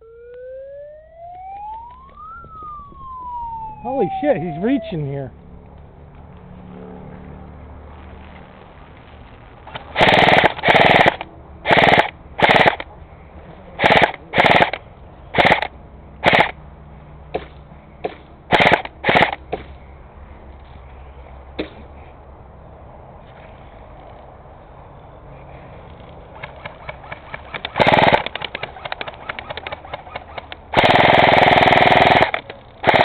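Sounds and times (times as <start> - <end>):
airsoft rifle firing bursts: 9.7 - 12.9, 13.8 - 16.6, 18.5 - 19.5, 26.4 - 33.0.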